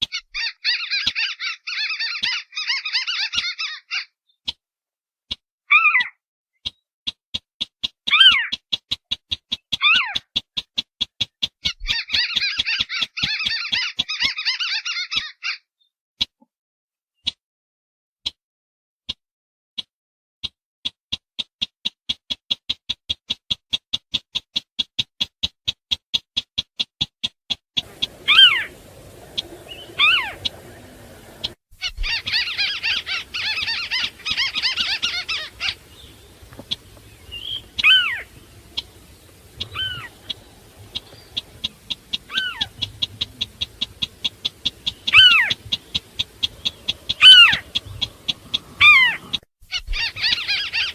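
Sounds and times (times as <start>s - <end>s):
falling whistles: 27.8s - 38.3s
crakes calling: 27.8s - 50.9s
dense chattering bursts: 27.8s - 50.9s.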